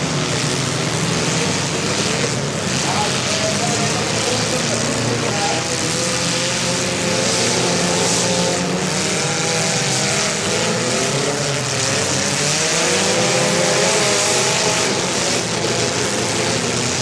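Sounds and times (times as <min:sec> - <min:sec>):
car engines revving hard: 0:00.0 - 0:17.0.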